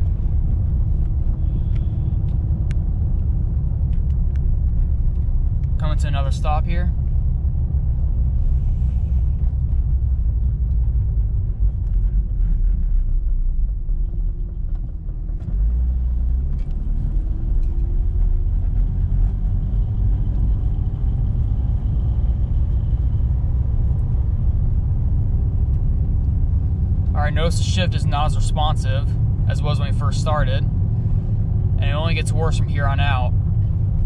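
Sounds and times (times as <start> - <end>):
car engine idling and revving: 0.0 - 34.0.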